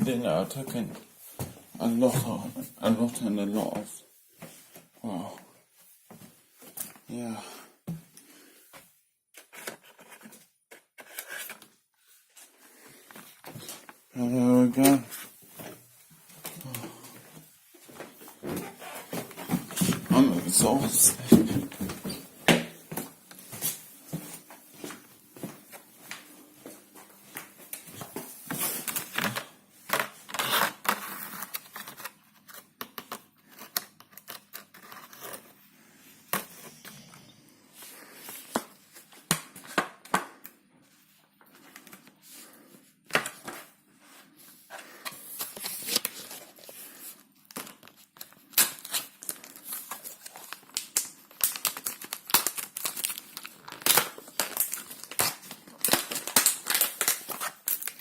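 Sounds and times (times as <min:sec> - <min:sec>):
plastic packaging crinkling and tearing: 0:45.2 - 0:58.0.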